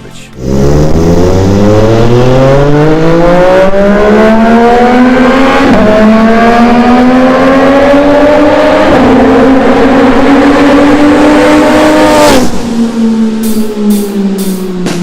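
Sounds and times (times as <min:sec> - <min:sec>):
motorcycle engine accelerating: 0:00.4 - 0:15.0.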